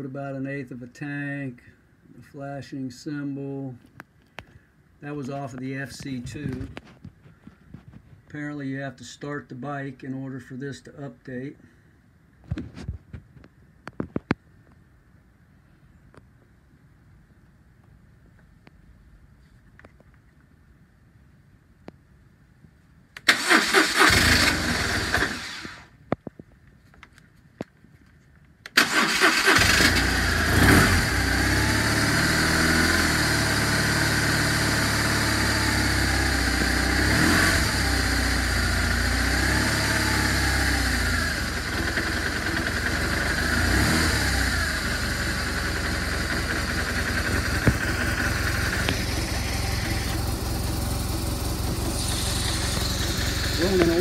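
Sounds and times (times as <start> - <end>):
electric starter cranking: 23.2 - 25.9, 28.7 - 32.0, 45.4 - 54.0
motorcycle engine idling: 39.8 - 43.6, 44.2 - 54.0.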